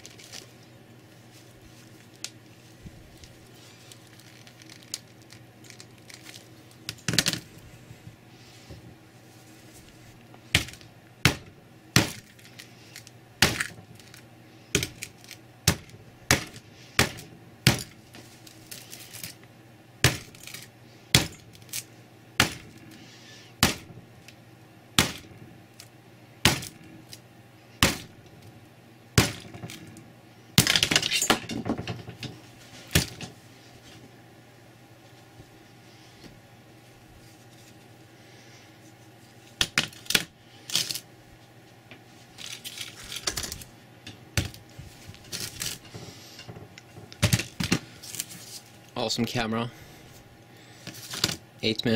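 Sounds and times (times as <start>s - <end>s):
sledgehammer cracking a phone: 10.6s - 12.3s, 13.4s - 13.8s, 14.7s - 18.0s, 20.0s - 21.5s, 22.4s - 22.8s, 23.6s - 24.0s, 25.0s - 25.4s, 26.4s - 26.8s, 27.8s - 28.1s, 29.2s - 29.8s.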